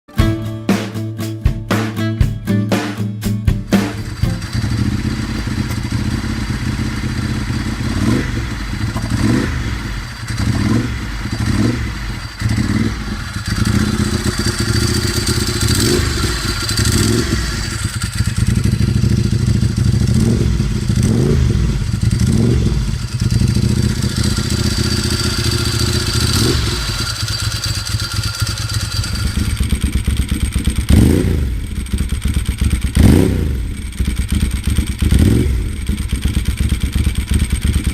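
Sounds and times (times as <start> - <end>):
motorcycle engine revving: 3.6 - 37.9.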